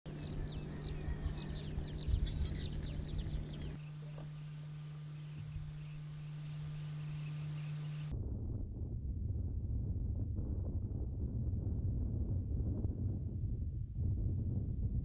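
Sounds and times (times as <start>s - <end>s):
wind rumble on microphone: 0.1s - 4.4s, 5.2s - 15.0s
birds chirping: 0.1s - 8.1s
steady low hum: 0.1s - 15.0s.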